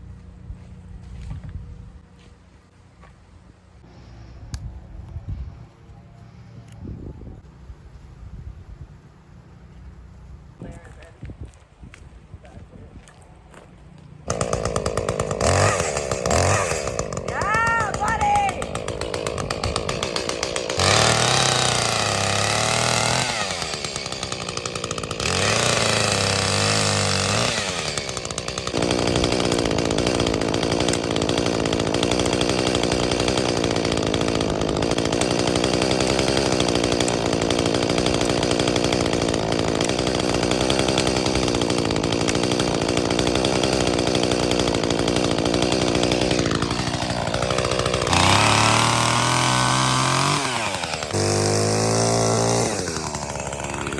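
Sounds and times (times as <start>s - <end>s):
chainsaw revving: 14.2s - 53.9s.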